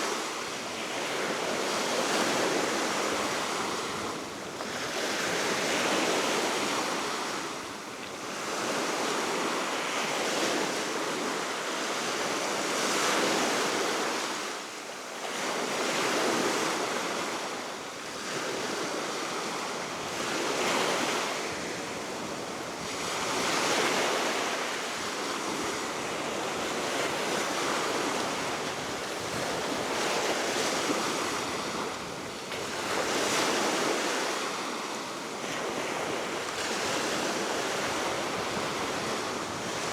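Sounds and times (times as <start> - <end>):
waves breaking on shore: 15.3 - 39.9
wind noise on microphone: 18.2 - 34.8, 35.4 - 39.9
steady wind: 18.6 - 39.9.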